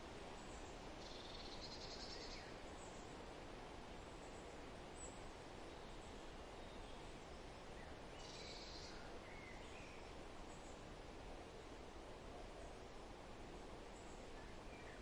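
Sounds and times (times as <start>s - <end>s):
steady background hiss: 0.0s - 15.0s
faint bird chirps: 0.4s - 3.2s, 4.2s - 10.8s.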